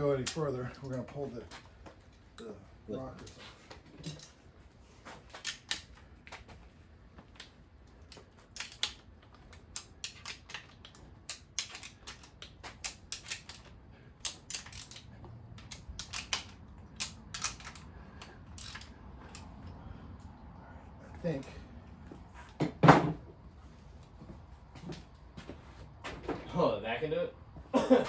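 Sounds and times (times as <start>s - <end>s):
metallic clicks of hand tools: 5.3s - 6.4s, 7.4s - 19.7s.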